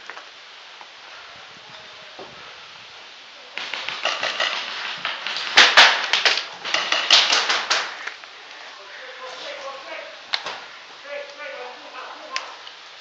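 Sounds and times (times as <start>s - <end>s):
paintball shots: 3.6s - 8.2s
paintballs striking: 3.6s - 8.3s.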